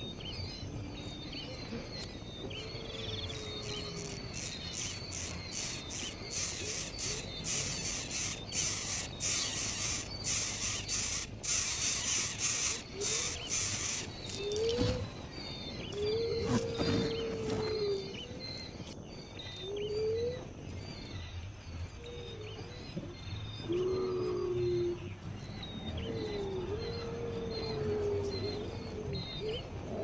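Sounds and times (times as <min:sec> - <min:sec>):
insect drone: 0:00.0 - 0:30.0
hissy high-pitched animal calls: 0:02.6 - 0:18.2.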